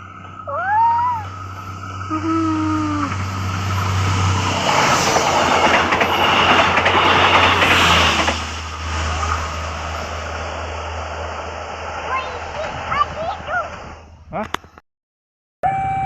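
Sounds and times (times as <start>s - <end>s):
steady low drone: 0.0s - 12.7s
train wheels rolling on rails: 0.0s - 14.1s
faint rail clacks: 4.6s - 10.4s.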